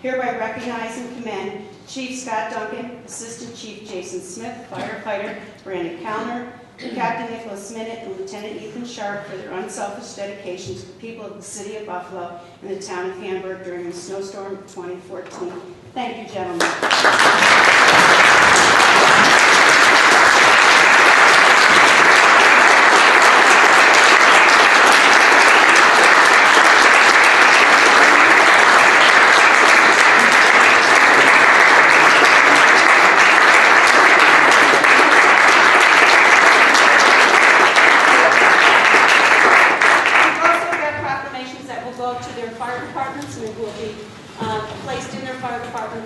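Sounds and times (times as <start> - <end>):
people clapping: 16.5 - 41.0.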